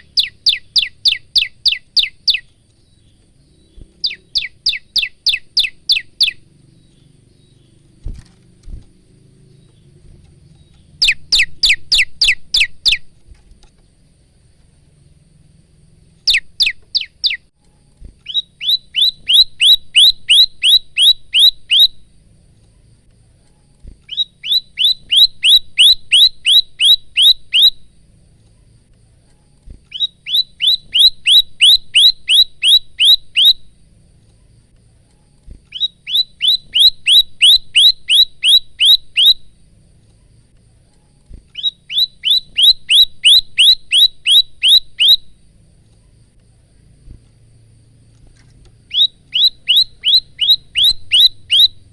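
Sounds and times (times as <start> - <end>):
tailorbird singing sharp chirps: 0.0 - 13.2, 15.8 - 17.5, 18.2 - 22.1, 24.0 - 28.0, 29.8 - 33.8, 35.3 - 40.4, 41.0 - 45.5, 48.7 - 51.9.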